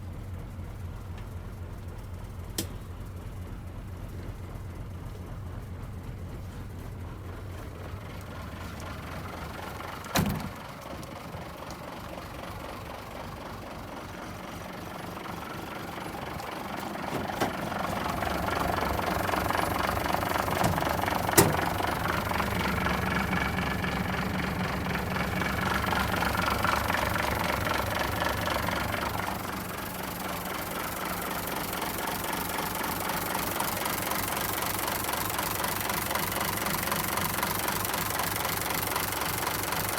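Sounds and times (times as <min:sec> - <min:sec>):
diesel truck engine idling: 0:00.0 - 0:39.9
sharp clunks: 0:20.6 - 0:21.8.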